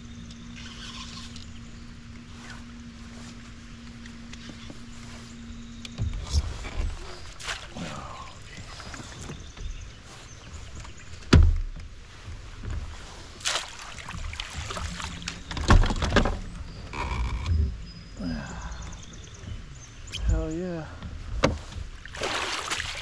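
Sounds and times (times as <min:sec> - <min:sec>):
knocks against kayak hull: 0:21.0 - 0:21.9.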